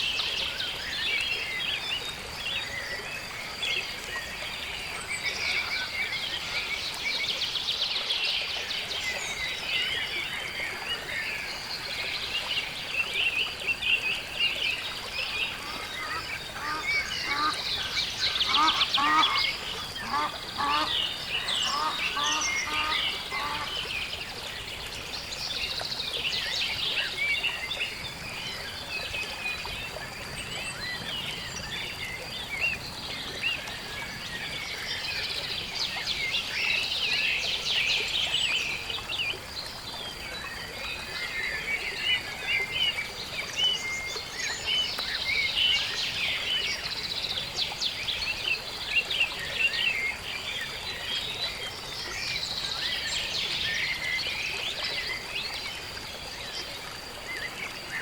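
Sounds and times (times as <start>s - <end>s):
birds chirping and trilling: 14.6s - 24.1s.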